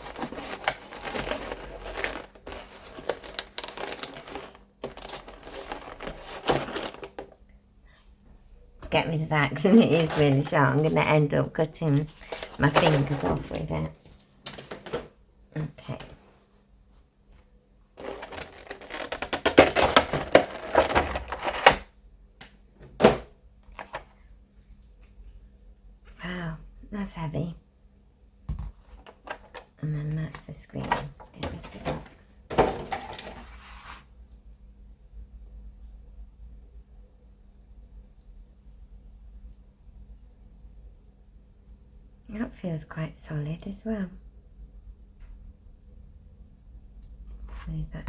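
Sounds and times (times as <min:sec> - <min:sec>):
packaging crinkling: 0:00.0 - 0:07.4, 0:18.0 - 0:21.8.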